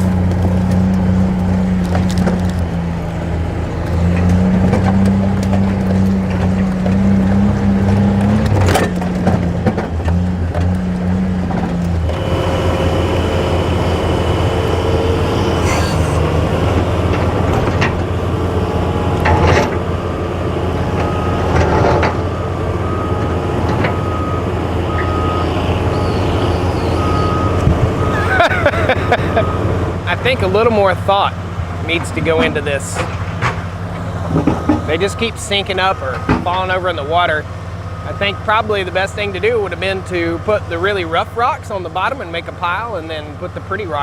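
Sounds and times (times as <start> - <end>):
excavator engine running: 0.0 - 44.0
backup beeper tone: 20.0 - 28.4.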